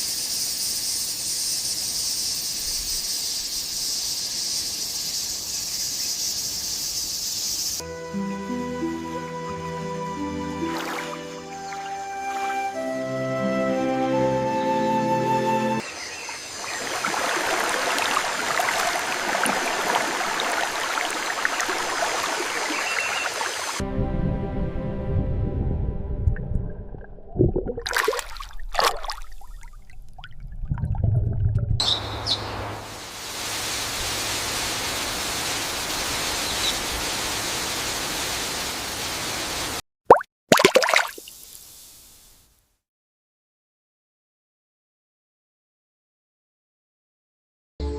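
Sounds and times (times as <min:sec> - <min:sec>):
stream water babbling: 0:10.3 - 0:13.1, 0:15.8 - 0:23.8, 0:27.5 - 0:30.5.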